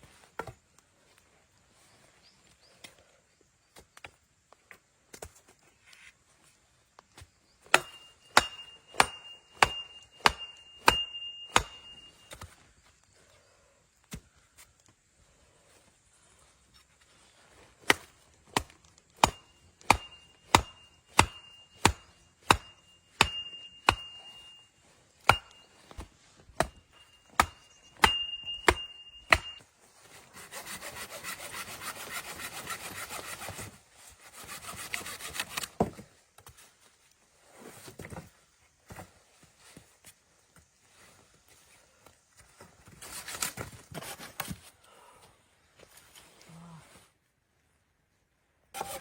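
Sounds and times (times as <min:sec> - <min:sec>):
thin ringing tone: 0:07.8 - 0:12.4, 0:19.3 - 0:26.0, 0:26.6 - 0:29.7
wood rasping: 0:30.1 - 0:33.7.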